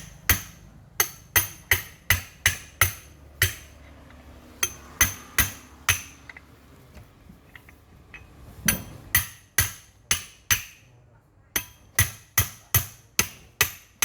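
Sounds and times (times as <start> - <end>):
hammer striking metal: 0.0 - 3.8, 4.6 - 6.4, 8.2 - 10.9, 11.6 - 14.0.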